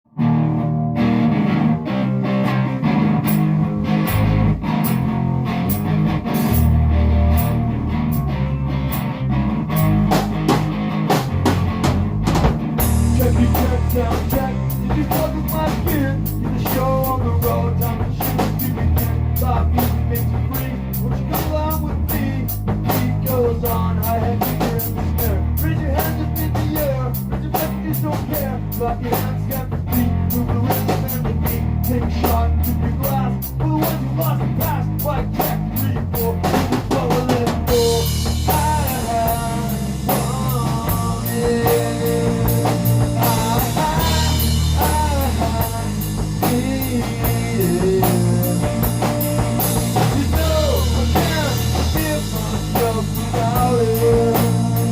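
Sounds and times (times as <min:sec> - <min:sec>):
rock music with drum kit: 0:00.1 - 0:54.9.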